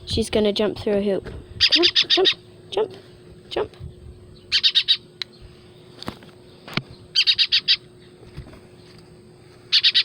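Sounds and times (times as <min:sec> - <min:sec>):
baby bird chirping: 0:01.6 - 0:02.4, 0:04.3 - 0:05.5, 0:06.9 - 0:07.9, 0:09.7 - 0:10.0.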